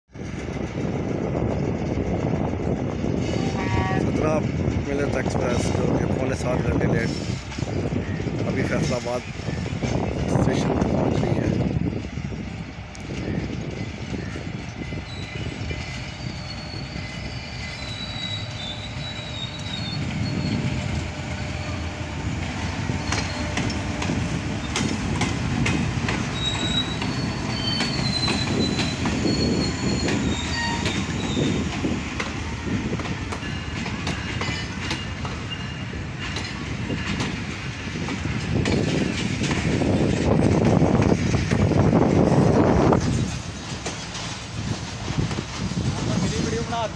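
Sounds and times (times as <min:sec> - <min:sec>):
train rumbling past: 0:00.1 - 0:46.9
rail joint clicks: 0:12.5 - 0:46.8
high wavering wheel squeals: 0:14.8 - 0:24.9, 0:26.2 - 0:32.0, 0:33.4 - 0:36.1.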